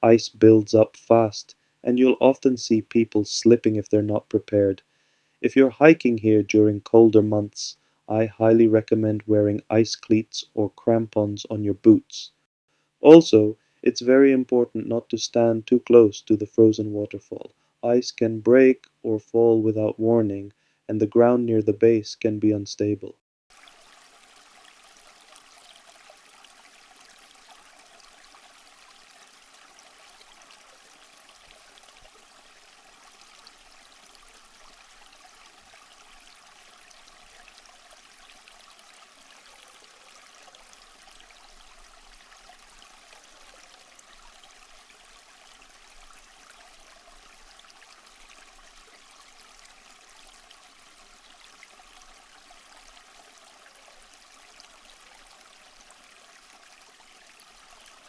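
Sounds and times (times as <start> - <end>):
water trickling: 0.0 - 11.7, 23.5 - 58.0.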